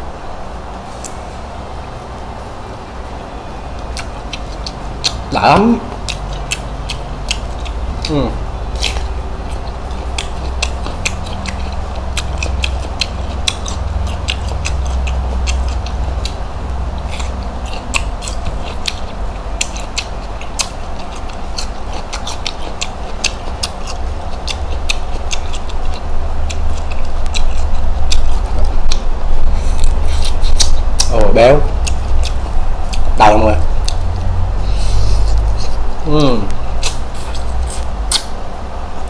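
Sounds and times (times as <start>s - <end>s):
steady low hum: 0.0s - 39.0s
chewing with small crackles: 3.8s - 38.4s.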